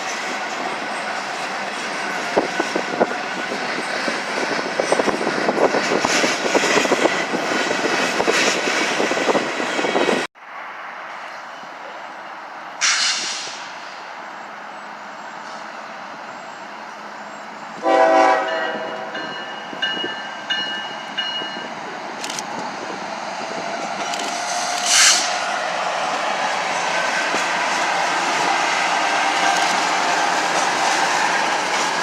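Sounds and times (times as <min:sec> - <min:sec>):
diesel freight train rumble: 0:00.0 - 0:32.0
locomotive air horn blasts: 0:17.8 - 0:19.3.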